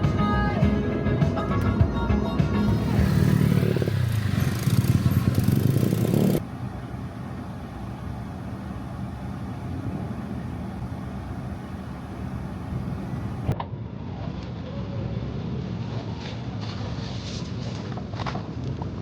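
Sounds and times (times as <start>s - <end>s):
vehicle engine hum: 0.0s - 13.6s
road noise: 2.6s - 13.6s.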